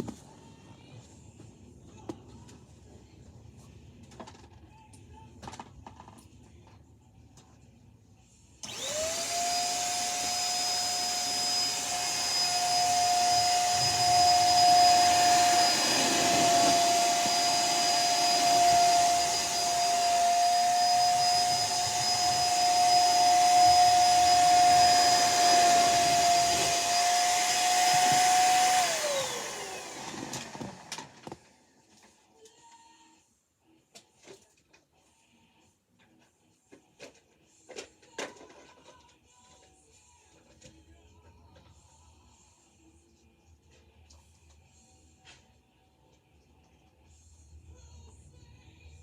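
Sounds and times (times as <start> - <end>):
vacuum cleaner motor whine: 8.6 - 31.4.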